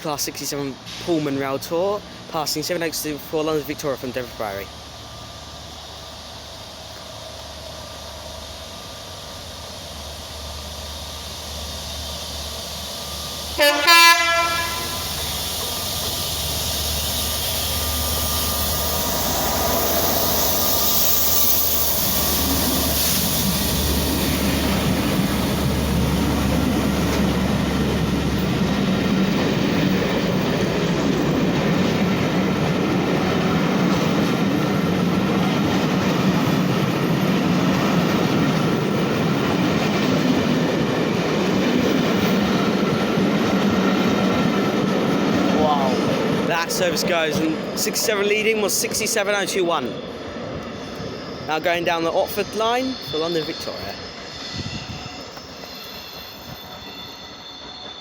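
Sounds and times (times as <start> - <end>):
diesel locomotive passing: 0.0 - 58.0
train horn blast: 13.6 - 15.2.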